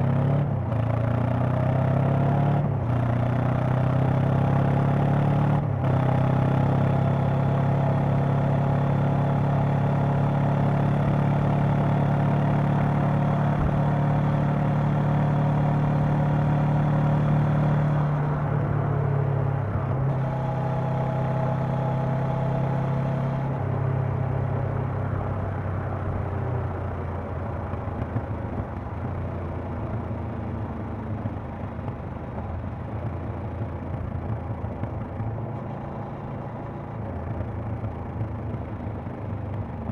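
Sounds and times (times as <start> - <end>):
motorcycle engine and exhaust: 0.0 - 39.9.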